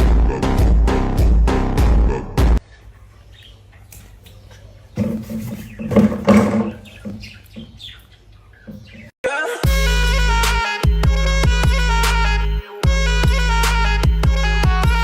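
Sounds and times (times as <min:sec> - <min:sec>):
loud backing music: 0:09.6 - 0:15.0.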